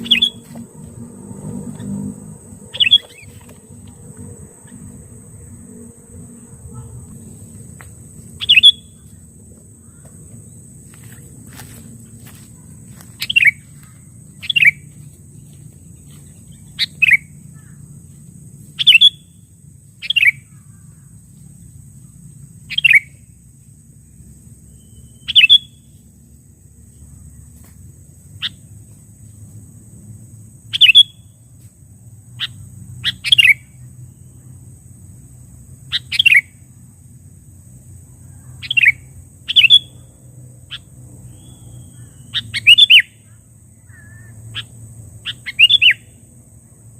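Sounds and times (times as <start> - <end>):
bulbul calling: 0.0 - 0.7, 1.6 - 7.2, 8.3 - 9.2, 12.6 - 14.8, 16.0 - 17.8, 18.8 - 19.3, 20.0 - 20.9, 22.7 - 23.2, 24.8 - 25.9, 30.7 - 31.3, 32.4 - 33.8, 35.9 - 36.5, 38.6 - 40.0, 40.7 - 46.1.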